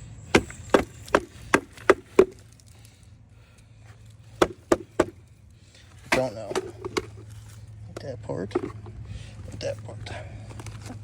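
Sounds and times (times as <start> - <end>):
sharp knocks on plastic housing: 4.4 - 5.2, 6.1 - 7.2.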